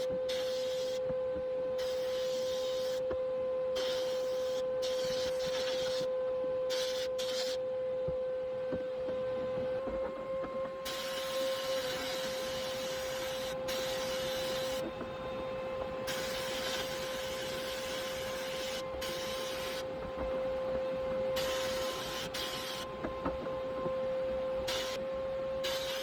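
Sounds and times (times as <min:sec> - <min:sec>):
hiss bursts: 0:01.8 - 0:03.0, 0:06.7 - 0:07.6, 0:10.9 - 0:15.0, 0:16.0 - 0:19.9, 0:21.4 - 0:22.9, 0:24.6 - 0:25.0, 0:25.6 - 0:26.0
machine hum: 0:07.7 - 0:26.0.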